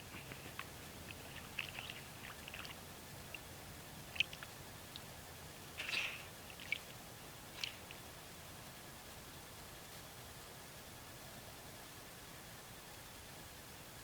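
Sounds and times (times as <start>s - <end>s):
crackling rustle: 0.0s - 5.2s, 5.8s - 10.6s.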